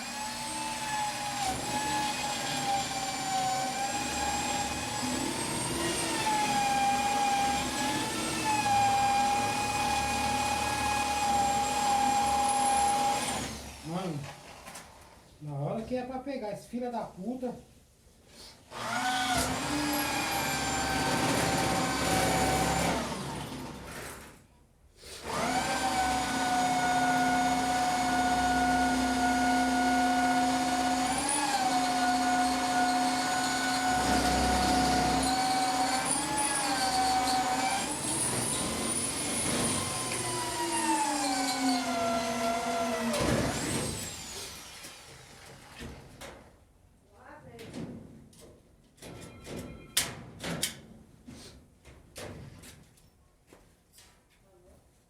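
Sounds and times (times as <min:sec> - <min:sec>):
power tool motor whining: 0:25.2 - 0:45.5.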